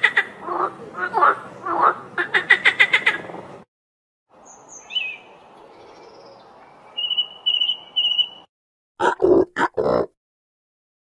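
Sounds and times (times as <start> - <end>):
bird chirping and trilling: 4.4 - 8.5.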